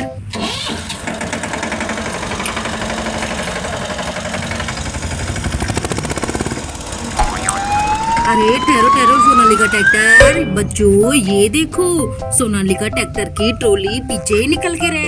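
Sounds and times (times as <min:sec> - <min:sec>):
tractor engine running: 0:00.3 - 0:11.4
siren rising in pitch: 0:07.1 - 0:10.6.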